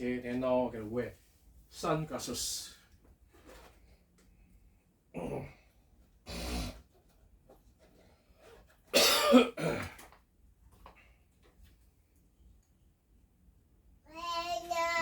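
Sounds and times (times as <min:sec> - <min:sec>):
person coughing and clearing throat: 0:08.9 - 0:10.1.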